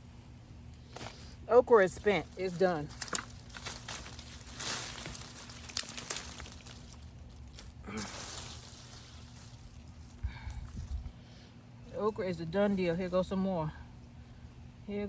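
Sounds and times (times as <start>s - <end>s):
dry plant stalks rustling and snapping: 0.4s - 11.2s.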